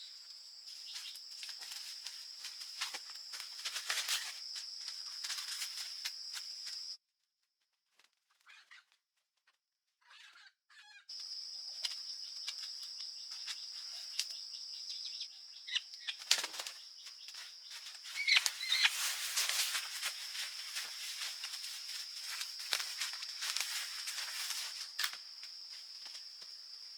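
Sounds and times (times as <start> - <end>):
rustling and crackling: 0.6 - 7.0, 16.2 - 26.9.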